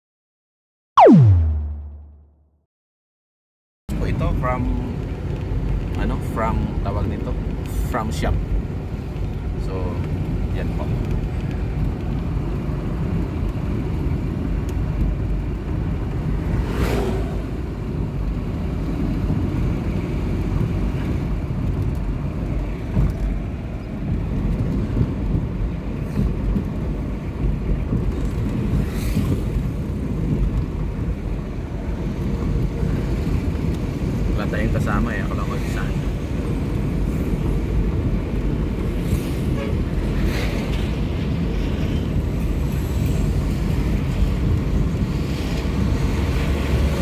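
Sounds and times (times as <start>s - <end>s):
brief whooshes: 1.0s - 2.2s
road noise: 3.9s - 47.0s.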